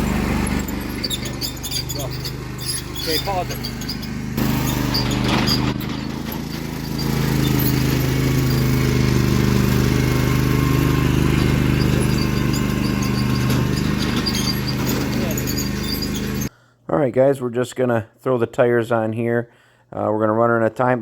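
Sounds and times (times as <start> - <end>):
vehicle engine running: 0.0 - 16.5.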